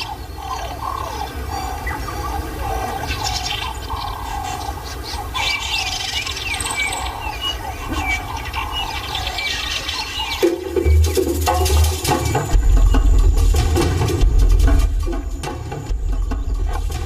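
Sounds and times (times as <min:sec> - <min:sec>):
small animals chirping: 0:00.0 - 0:17.0
steady low rumble: 0:10.7 - 0:17.0.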